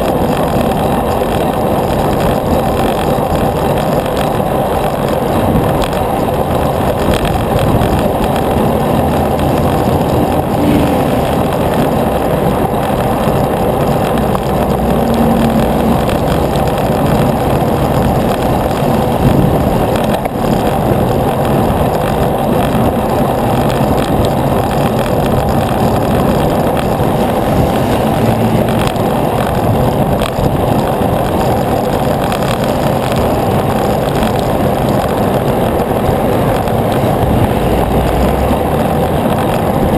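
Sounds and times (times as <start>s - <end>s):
bicycle road noise: 0.0s - 39.9s
passing traffic engines: 0.0s - 39.9s
wind rushing on microphone: 0.0s - 39.9s.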